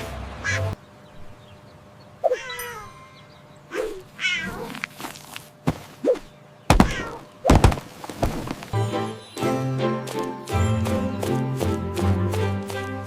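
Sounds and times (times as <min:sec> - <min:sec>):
cat meowing: 0:04.2 - 0:04.7
loud thump: 0:06.7 - 0:08.6.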